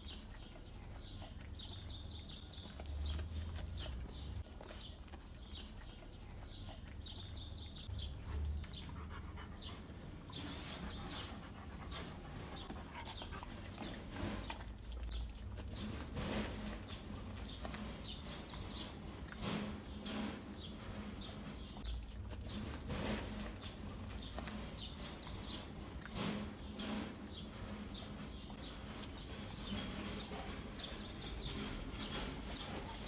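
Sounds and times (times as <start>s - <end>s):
dog licking and lapping: 0.0s - 19.9s, 20.6s - 22.9s.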